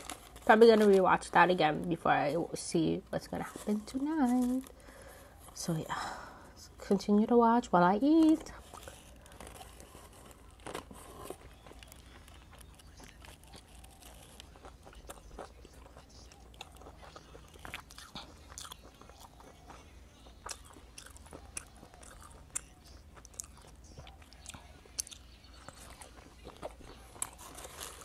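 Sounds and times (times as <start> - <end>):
person chewing a soft roll: 0.0 - 0.5, 8.5 - 28.0.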